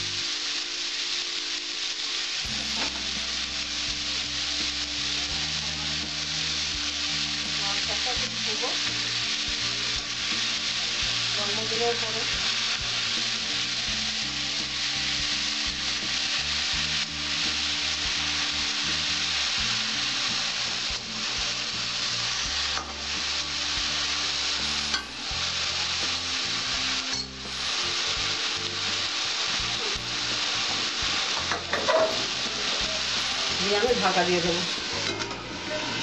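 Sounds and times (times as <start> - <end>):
leaves sizzling in oil: 0.0 - 36.0.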